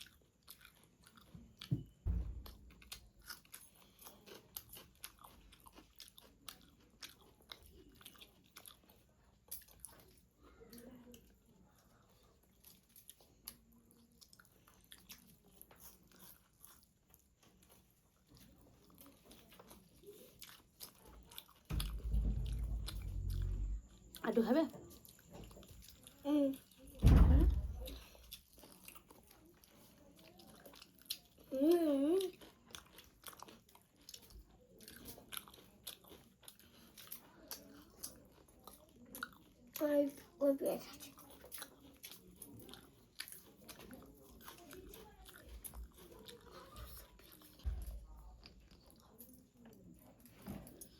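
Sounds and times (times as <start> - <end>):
chewing food: 0.0 - 50.9
loud low rumble: 21.8 - 24.0.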